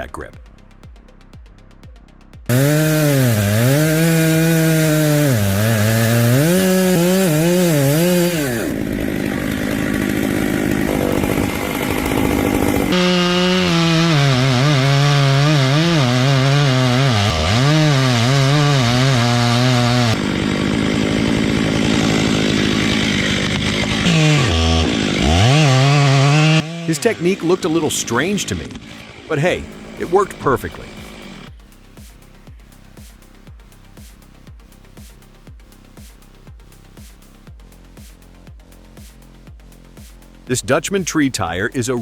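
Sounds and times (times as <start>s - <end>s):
chainsaw cutting wood: 2.5s - 32.2s, 35.8s - 36.2s.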